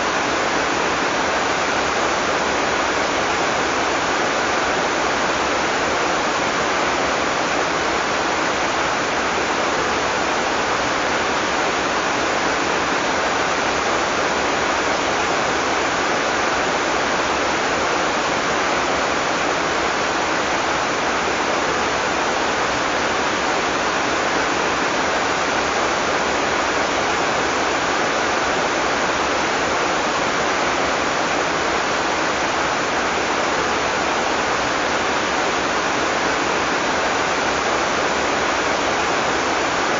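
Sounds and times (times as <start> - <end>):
heavy rain downpour: 0.0 - 39.9.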